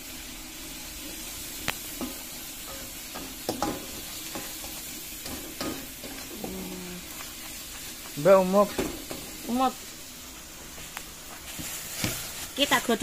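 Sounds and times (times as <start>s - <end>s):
paste sizzling in hot oil: 0.0s - 13.0s
spatula scraping a wok: 11.4s - 13.0s.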